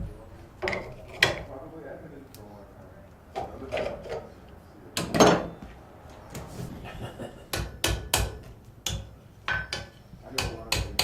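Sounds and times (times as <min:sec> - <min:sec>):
hammer striking metal on anvil: 0:07.5 - 0:11.0.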